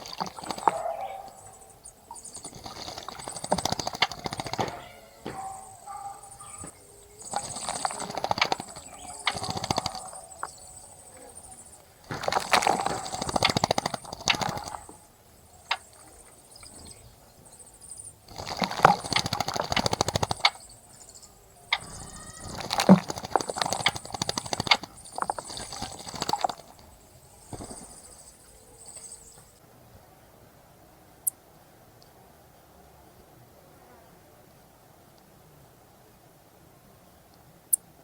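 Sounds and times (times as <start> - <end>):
bird splashing water: 0.0 - 10.7, 12.0 - 16.8, 18.2 - 20.8, 21.7 - 29.4
rapid wing flutters: 2.3 - 10.4, 12.1 - 15.0, 18.3 - 20.6, 21.8 - 26.8.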